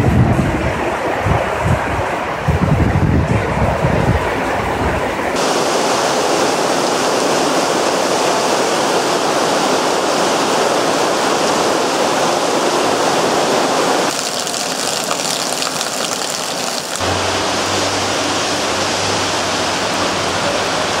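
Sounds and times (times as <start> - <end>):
heavy rain downpour: 5.4 - 21.0.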